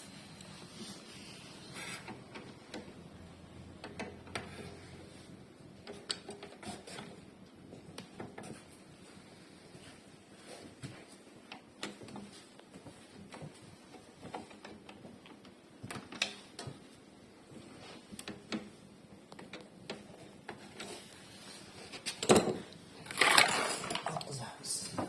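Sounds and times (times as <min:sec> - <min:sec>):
clicks and rattles of hand tools: 0:22.0 - 0:24.3.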